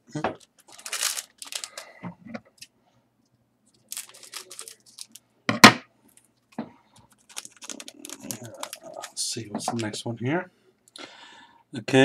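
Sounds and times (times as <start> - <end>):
wrapper ripping: 0.4 - 1.9, 3.9 - 5.2, 7.1 - 9.2
wrapper crinkling: 0.4 - 2.0, 3.7 - 5.2, 7.1 - 9.9.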